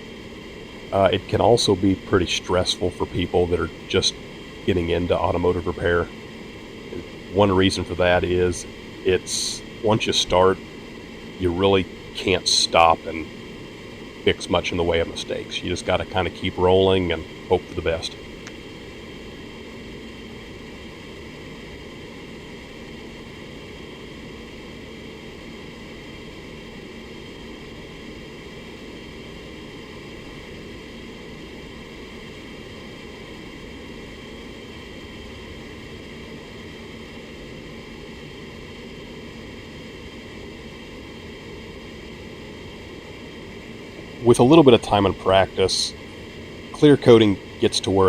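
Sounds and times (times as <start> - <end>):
low steady hum: 0.0 - 48.0.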